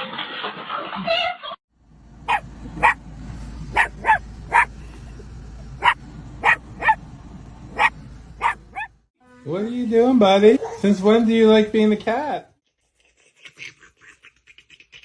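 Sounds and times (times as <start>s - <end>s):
dog barking: 2.3s - 3.0s, 3.7s - 4.8s, 5.8s - 7.0s, 7.8s - 8.9s.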